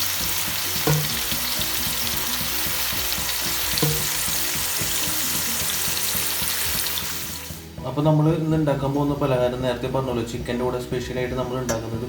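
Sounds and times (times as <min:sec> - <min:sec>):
oil popping: 0:00.0 - 0:07.6, 0:11.6 - 0:12.0
chicken sizzling in oil: 0:00.0 - 0:07.7.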